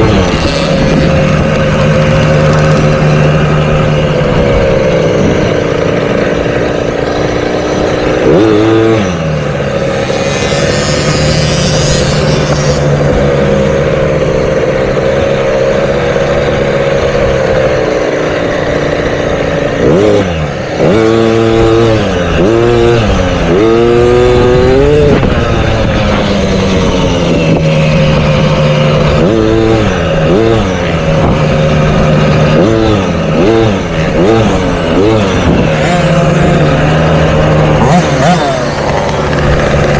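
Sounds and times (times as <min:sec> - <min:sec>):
dirt bike engines droning: 0:00.0 - 0:39.9
engine revving up and down: 0:00.0 - 0:39.9.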